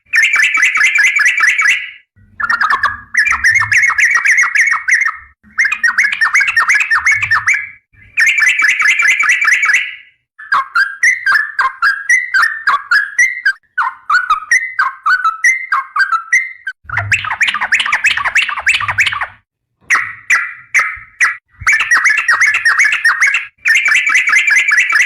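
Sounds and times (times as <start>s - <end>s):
bulbul singing chattering notes: 19.9s - 25.0s.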